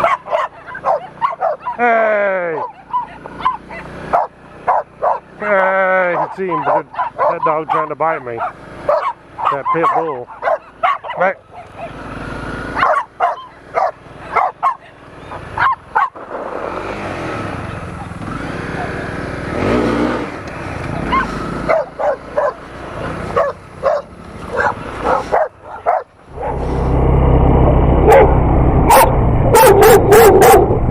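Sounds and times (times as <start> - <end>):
dogs barking: 0.0 - 5.4, 6.0 - 12.1, 12.7 - 16.2, 21.0 - 26.7, 28.0 - 30.9
motorcycle engine running: 0.0 - 30.9.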